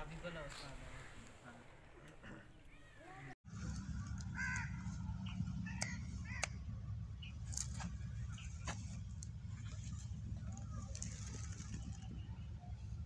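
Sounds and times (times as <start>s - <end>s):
steady low rumble: 3.5s - 13.0s.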